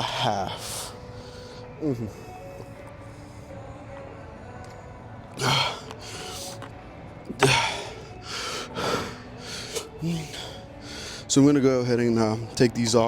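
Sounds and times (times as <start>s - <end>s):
man breathing hard: 5.4s - 6.6s, 7.4s - 11.3s.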